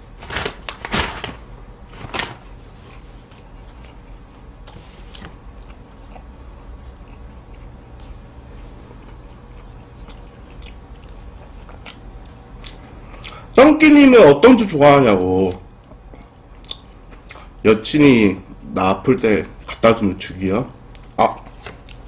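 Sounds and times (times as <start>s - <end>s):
chewing with small crunches: 2.4s - 13.6s, 15.4s - 17.6s, 19.4s - 19.9s, 20.8s - 22.0s.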